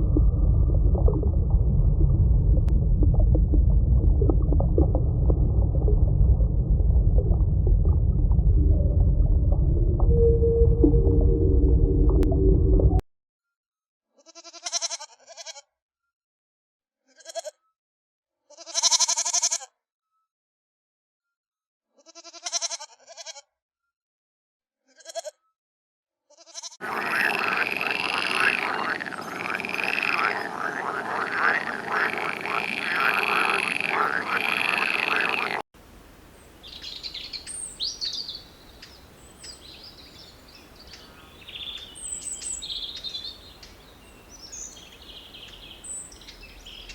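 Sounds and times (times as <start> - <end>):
short bleats: 14.2 - 15.7, 18.5 - 19.7, 22.0 - 23.5, 24.9 - 25.4, 26.3 - 32.6
dense chorus of overlapping calls: 26.8 - 35.6
faint outdoor background noise: 26.8 - 46.9
bird chirps: 36.6 - 46.9.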